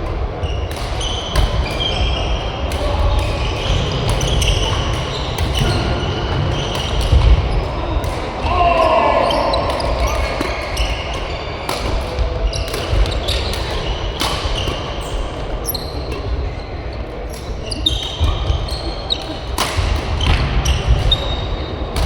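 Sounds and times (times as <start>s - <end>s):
shoes squeaking on court floor: 0.4s - 8.1s, 9.2s - 21.7s
racket hitting shuttlecock: 9.2s - 15.0s.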